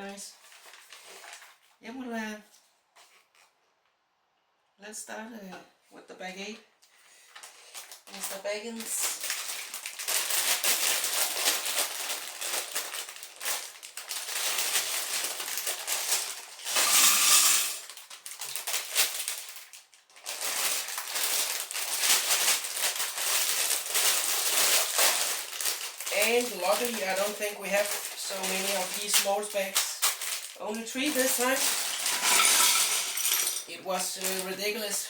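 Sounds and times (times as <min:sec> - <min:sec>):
plastic bag crinkling: 0:00.0 - 0:01.8, 0:07.3 - 0:35.0
plastic bricks rattling: 0:16.6 - 0:18.9, 0:30.1 - 0:34.5.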